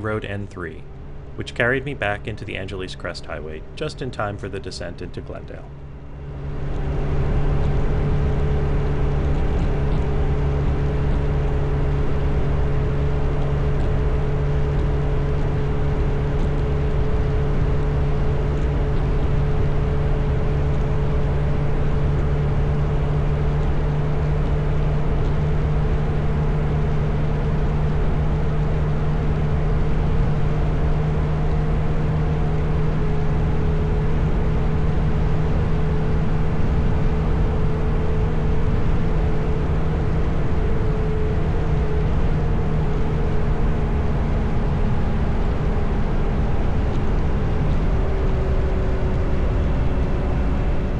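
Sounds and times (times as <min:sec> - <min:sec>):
low rumble: 0:00.0 - 0:50.9.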